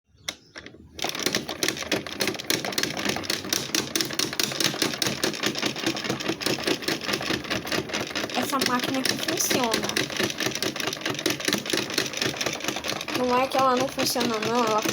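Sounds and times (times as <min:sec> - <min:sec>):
rapid irregular clattering: 0:00.2 - 0:14.9
washing machine running: 0:00.8 - 0:14.9.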